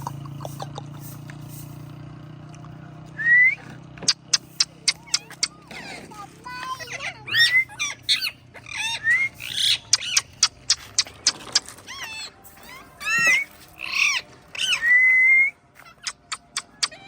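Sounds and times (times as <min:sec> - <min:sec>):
parrot squawking and whistling: 0:06.7 - 0:17.0.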